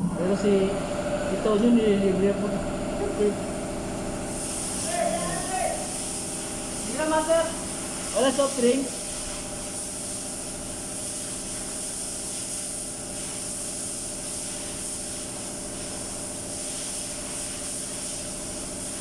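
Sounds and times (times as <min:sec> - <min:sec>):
high hiss: 0:04.3 - 0:10.3.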